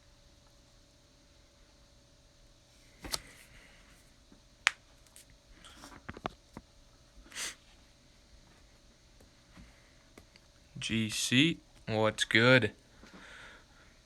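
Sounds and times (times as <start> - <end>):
faint steady hum: 0.0 - 14.0
light handling noises: 3.0 - 3.5.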